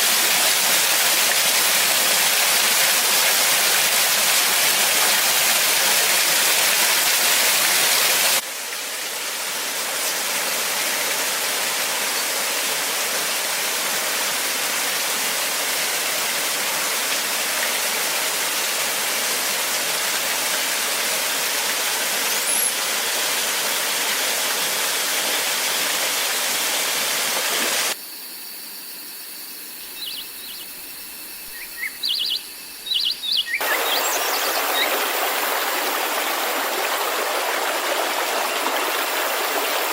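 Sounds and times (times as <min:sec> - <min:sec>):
rushing water: 0:00.0 - 0:28.0, 0:29.8 - 0:39.9
high bird chirps: 0:29.8 - 0:34.9.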